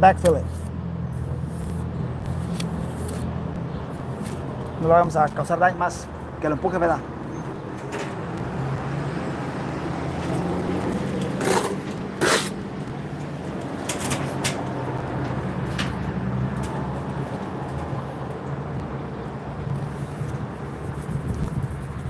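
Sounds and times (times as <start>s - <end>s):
low motor hum: 7.0s - 22.0s
short scrapes: 11.4s - 12.6s.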